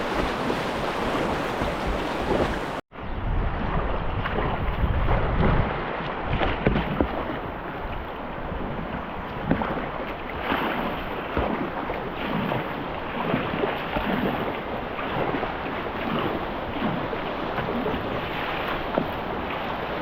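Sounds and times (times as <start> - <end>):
whitewater rushing and splashing: 0.0 - 2.8
wind noise on microphone: 0.0 - 20.0.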